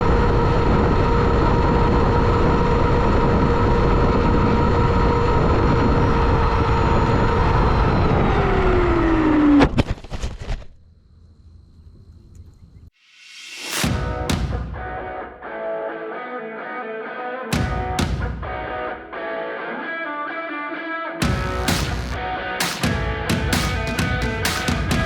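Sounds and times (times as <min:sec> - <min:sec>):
electric motor whine: 0:00.0 - 0:09.6.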